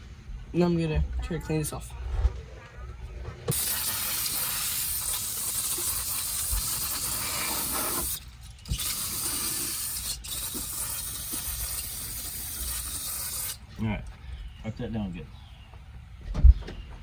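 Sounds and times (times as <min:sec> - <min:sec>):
aerosol can spraying: 0:03.5 - 0:13.6.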